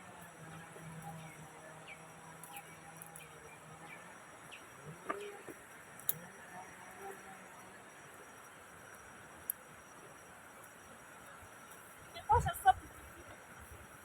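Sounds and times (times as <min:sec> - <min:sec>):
low steady hum: 0:00.0 - 0:14.0
bird chirping: 0:01.0 - 0:05.5.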